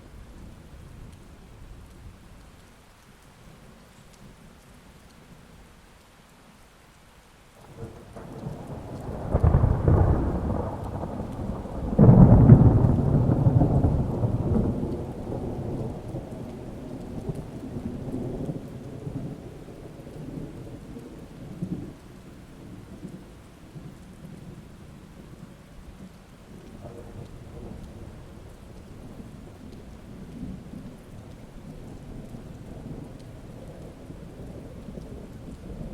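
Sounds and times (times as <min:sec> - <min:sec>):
steady rain: 0:00.0 - 0:35.9
thunder rumbling: 0:07.6 - 0:35.9.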